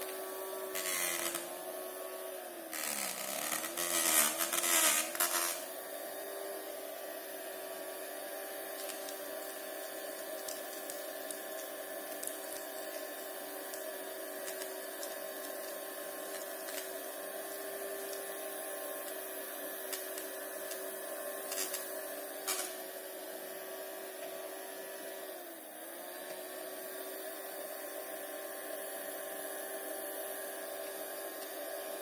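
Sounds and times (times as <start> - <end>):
small motor whining: 0.0 - 1.8, 2.7 - 5.8.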